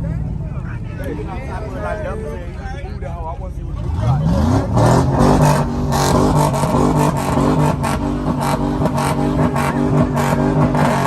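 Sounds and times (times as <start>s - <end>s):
car engine revving: 3.6s - 11.0s.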